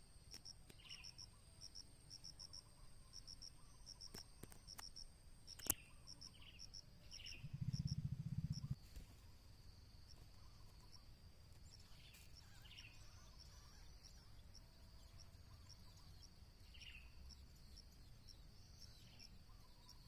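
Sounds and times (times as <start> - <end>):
crickets trilling: 0.0 - 20.0
faint bird chirps: 0.3 - 20.0
sharp click: 4.1 - 5.9
low pulsing buzz: 6.3 - 19.6.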